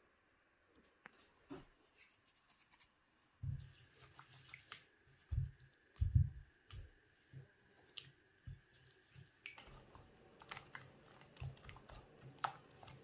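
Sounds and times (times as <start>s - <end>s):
soft low thumps: 5.3s - 6.5s.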